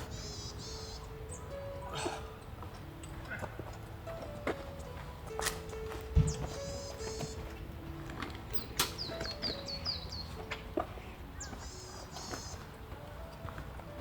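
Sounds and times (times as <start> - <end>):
songbird buzzy calls: 0.0 - 2.4, 6.2 - 7.6, 8.5 - 10.4, 11.3 - 12.7
songbird chirps: 0.0 - 14.0.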